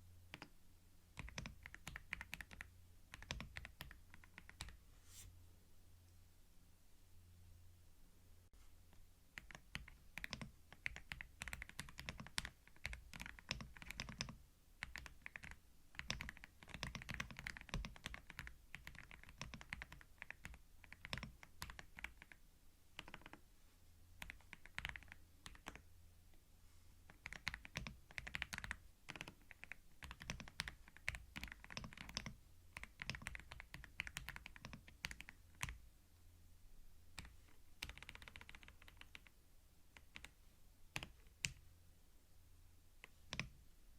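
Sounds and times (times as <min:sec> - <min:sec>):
typing on a computer keyboard: 0:00.3 - 0:00.5, 0:01.2 - 0:04.8, 0:09.4 - 0:22.4, 0:23.0 - 0:23.4, 0:24.2 - 0:25.8, 0:27.1 - 0:35.8, 0:37.2 - 0:41.6, 0:43.0 - 0:43.6.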